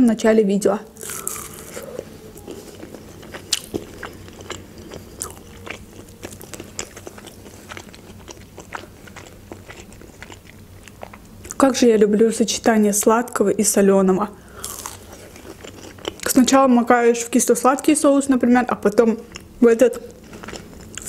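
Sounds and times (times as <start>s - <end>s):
person chewing crunchy food: 0.9s - 11.6s, 14.5s - 16.3s, 20.1s - 21.0s.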